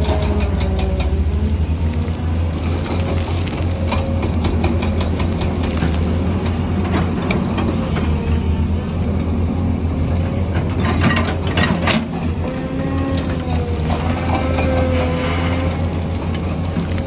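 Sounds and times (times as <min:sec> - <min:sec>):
light clicks and clanks: 0:00.0 - 0:08.1, 0:10.2 - 0:12.4
heavy diesel engine rumbling: 0:00.0 - 0:17.0.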